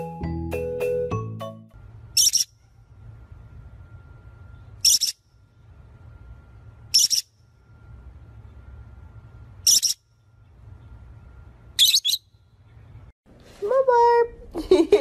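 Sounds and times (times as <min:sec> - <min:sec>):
parrot screeching: 0:02.2 - 0:02.5.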